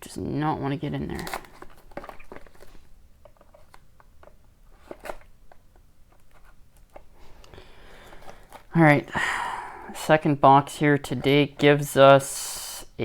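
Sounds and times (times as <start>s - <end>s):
packaging clicks and crackles: 1.0s - 8.8s.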